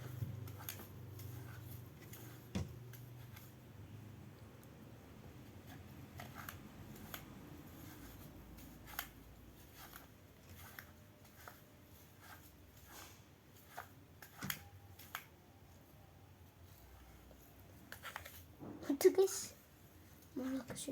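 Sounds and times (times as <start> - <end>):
low room hum: 0.0 - 20.9.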